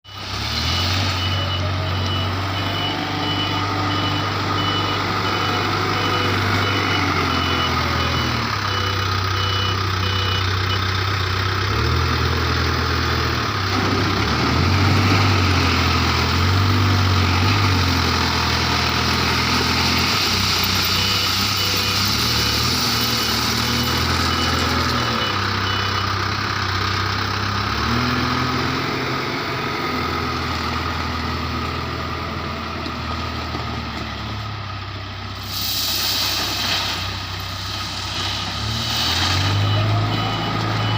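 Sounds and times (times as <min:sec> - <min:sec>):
reversing alarm beeping: 0:00.1 - 0:11.0, 0:17.3 - 0:26.6, 0:38.2 - 0:40.9
backhoe diesel engine working: 0:00.1 - 0:40.9.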